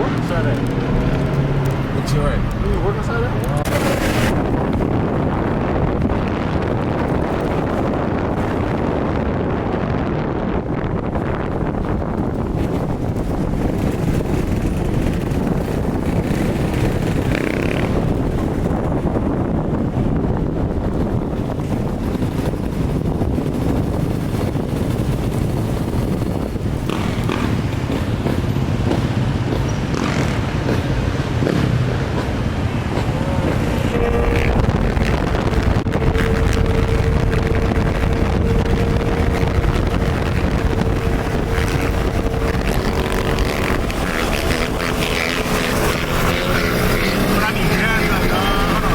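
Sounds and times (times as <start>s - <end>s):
wind buffeting microphone: 0.0s - 48.9s
vehicle engine running: 20.3s - 48.9s.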